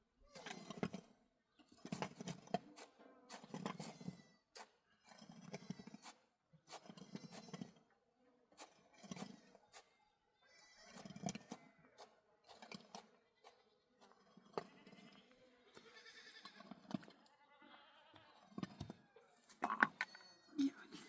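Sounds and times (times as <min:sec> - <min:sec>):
goat bleating: 0:14.5 - 0:18.5.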